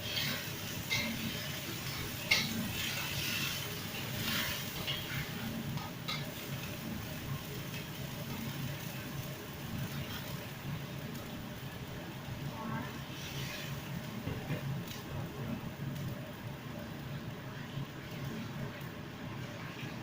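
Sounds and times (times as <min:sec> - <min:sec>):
food frying in a pan: 0:00.0 - 0:20.0.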